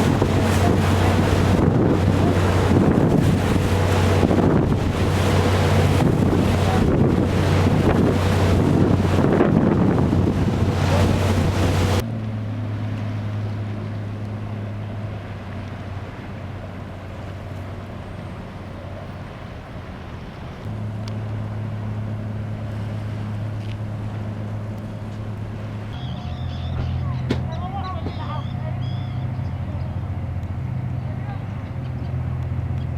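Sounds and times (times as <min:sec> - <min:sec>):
wind buffeting microphone: 0:00.0 - 0:12.0
low ship engine drone: 0:00.0 - 0:32.9.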